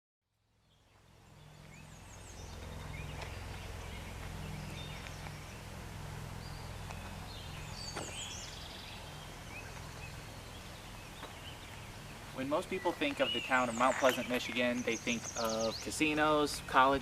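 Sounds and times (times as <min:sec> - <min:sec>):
small birds chirping: 0:00.6 - 0:17.0
steady low rumble: 0:01.0 - 0:13.5.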